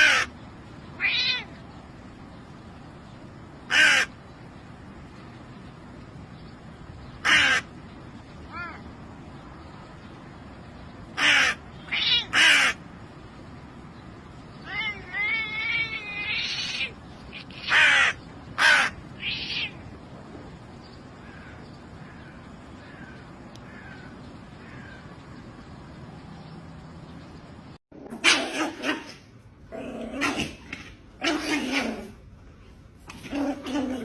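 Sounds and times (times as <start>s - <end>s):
harsh caw-like bird calls: 0.0s - 0.4s, 3.7s - 4.2s, 7.2s - 7.8s, 11.1s - 12.9s, 14.6s - 19.8s, 21.2s - 25.2s.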